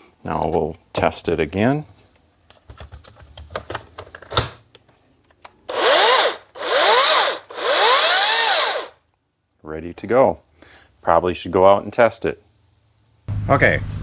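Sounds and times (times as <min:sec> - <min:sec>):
electric chainsaw running: 0:05.7 - 0:09.0.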